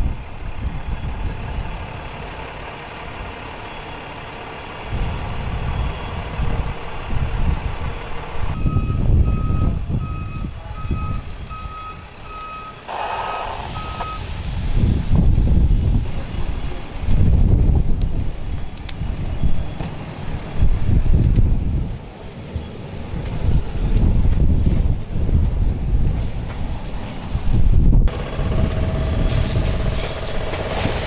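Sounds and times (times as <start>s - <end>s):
wind noise: 0.0s - 2.2s, 4.9s - 31.0s
low engine rumble: 0.0s - 31.0s
vehicle reversing alarm beeping: 5.0s - 6.7s, 7.7s - 14.3s.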